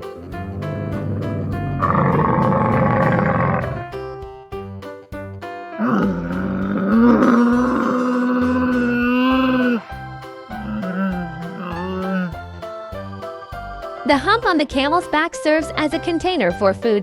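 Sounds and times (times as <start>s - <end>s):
music with plucked beat: 0.0s - 17.0s
camel roaring and moaning: 1.5s - 3.9s, 5.8s - 9.8s.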